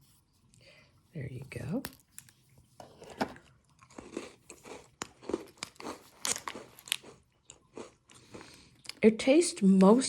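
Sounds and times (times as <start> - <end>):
crunching and chewing biscuit: 3.0 - 9.0.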